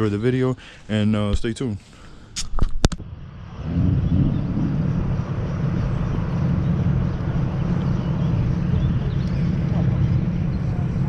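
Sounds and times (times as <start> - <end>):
car engine and road noise: 2.9 - 11.0.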